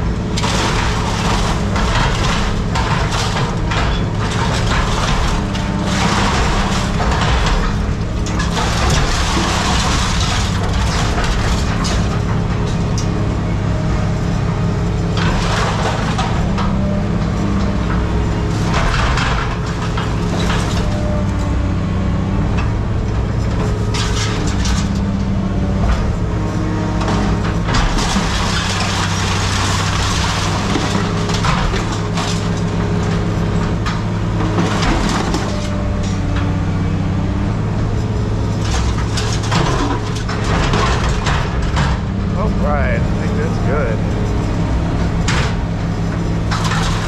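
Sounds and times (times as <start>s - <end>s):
heavy engine running: 0.0s - 47.0s
scrap metal crunching and crashing: 0.0s - 47.0s.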